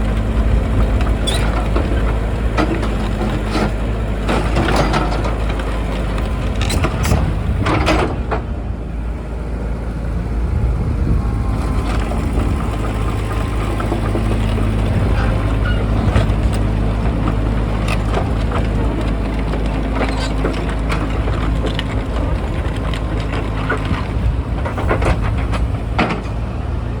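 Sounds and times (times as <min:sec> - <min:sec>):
diesel engine running: 0:00.0 - 0:27.0
metallic clanks and knocks: 0:06.5 - 0:08.5.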